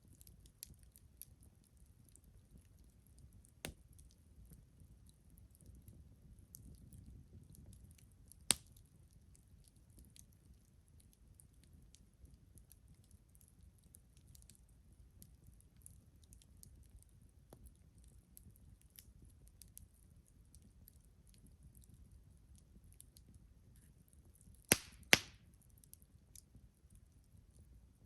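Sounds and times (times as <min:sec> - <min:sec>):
wood fire crackling: 0:00.1 - 0:27.7
loud sharp pop: 0:24.7 - 0:25.4.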